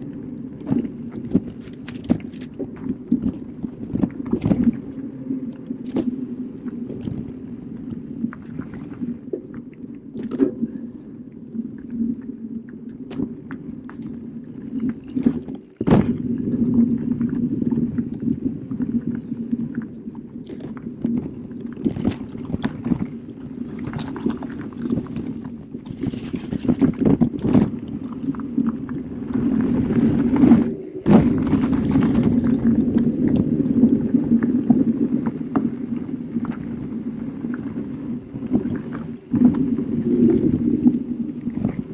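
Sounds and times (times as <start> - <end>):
bike knocking and rattling over bumps: 0.6 - 5.0, 14.5 - 17.0, 29.4 - 33.2
bike tyres rolling on dirt: 14.5 - 34.6.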